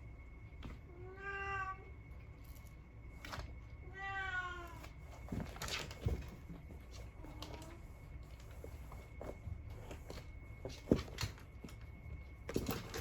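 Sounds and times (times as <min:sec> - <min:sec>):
cat meowing: 0:01.0 - 0:01.9, 0:03.9 - 0:04.8.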